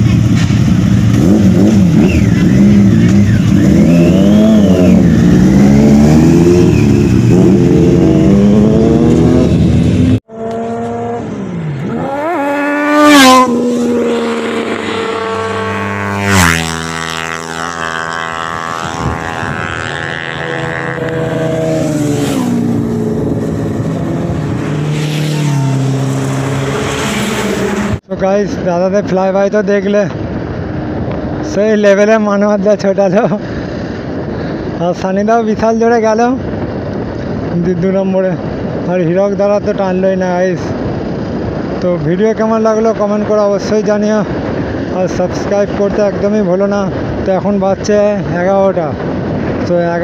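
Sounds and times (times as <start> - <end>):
motorcycle engine revving: 0.0 - 28.1
superbikes passing at high speed: 0.0 - 28.1.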